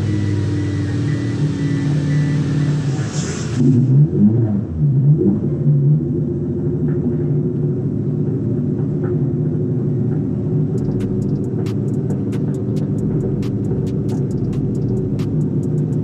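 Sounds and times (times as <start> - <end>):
car engine idling: 0.0 - 3.6, 9.8 - 16.0.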